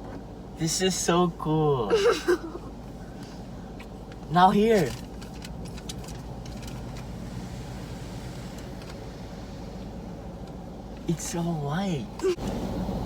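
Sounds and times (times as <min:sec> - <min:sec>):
car wash machinery rumble and hiss: 0:07.1 - 0:13.0.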